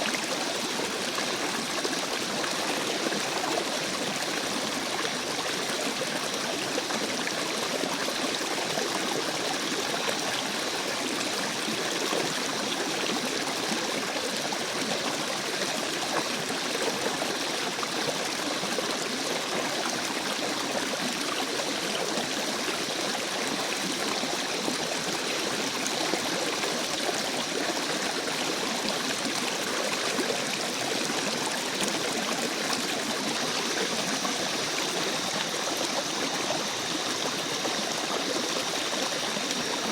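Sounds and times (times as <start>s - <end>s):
stream of running water: 0.0s - 39.9s.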